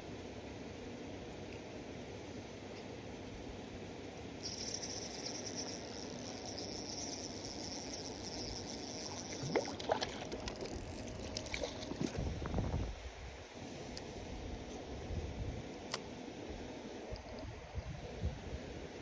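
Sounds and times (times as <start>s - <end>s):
high fine whirr: 4.1s - 18.8s
water trickling and splashing: 7.9s - 12.2s
splashy sweeps and clicks: 8.4s - 12.2s.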